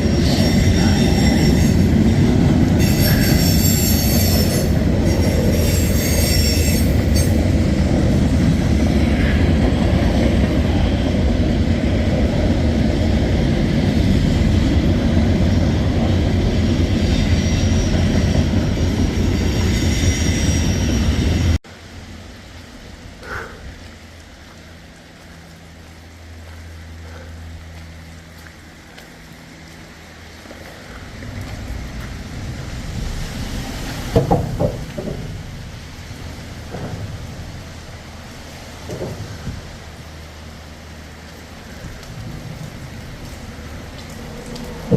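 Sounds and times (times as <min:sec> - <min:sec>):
rain falling: 0:21.6 - 0:44.9.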